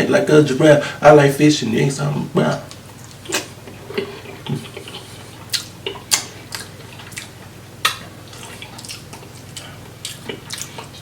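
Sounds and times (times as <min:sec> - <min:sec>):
wet eating clicks and smacks: 0:02.7 - 0:11.0.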